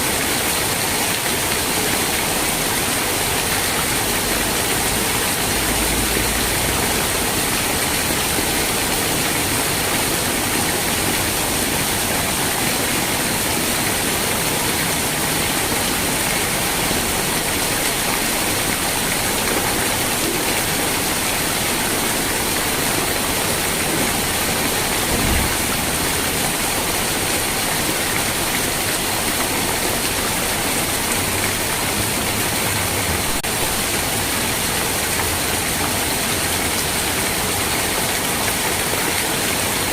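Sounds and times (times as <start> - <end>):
steady rain falling: 0.0 - 39.9
faint low thump: 25.1 - 25.9.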